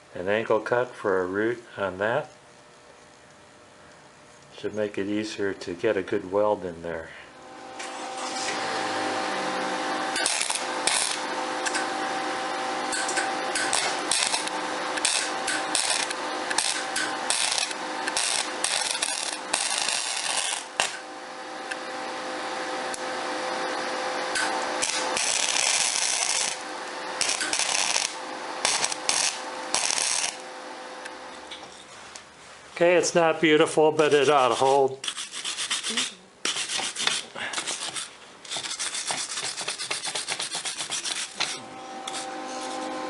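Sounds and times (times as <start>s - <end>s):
welder arc crackling: 9.8s - 21.9s, 24.2s - 31.2s.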